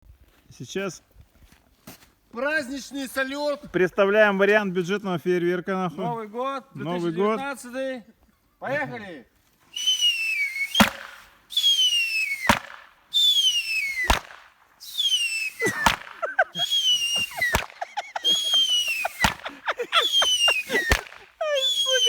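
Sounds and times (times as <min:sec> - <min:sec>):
wavering lower whistle: 0:09.7 - 0:14.2, 0:14.8 - 0:16.0, 0:16.6 - 0:22.0
whistling fireworks with bangs: 0:09.7 - 0:22.0.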